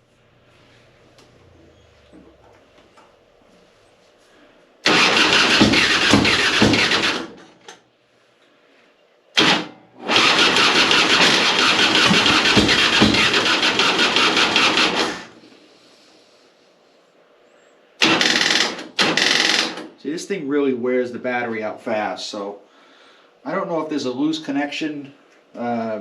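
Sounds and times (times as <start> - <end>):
electric starter cranking engine: 4.8 - 7.8, 9.4 - 15.5, 18.0 - 19.9.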